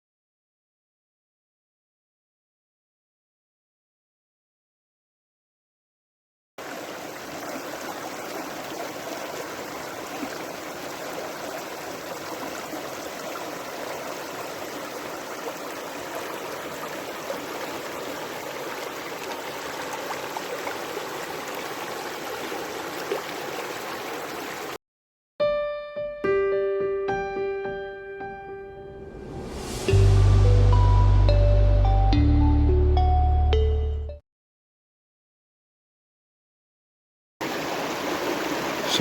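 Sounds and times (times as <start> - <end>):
creek water rushing: 6.6 - 24.8, 37.4 - 39.0.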